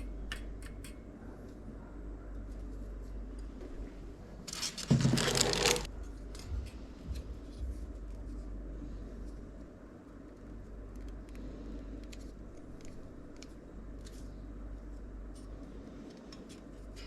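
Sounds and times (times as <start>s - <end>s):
packaging scraping and rustling: 4.4s - 5.9s.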